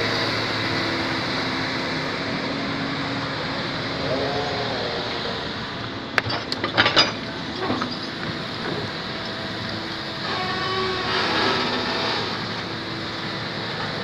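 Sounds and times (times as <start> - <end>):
diesel engine running: 0.0 - 14.0
rising and falling whine: 1.9 - 6.5
sharp knocks and clanks: 6.2 - 9.3.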